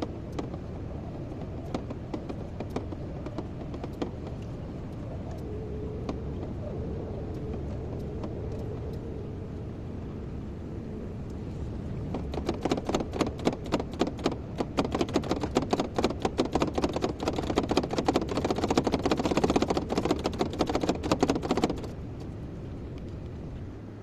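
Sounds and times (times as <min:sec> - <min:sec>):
rapid uneven clatter of knocks: 0:00.0 - 0:06.7, 0:12.0 - 0:22.0
excavator engine droning: 0:00.0 - 0:24.0.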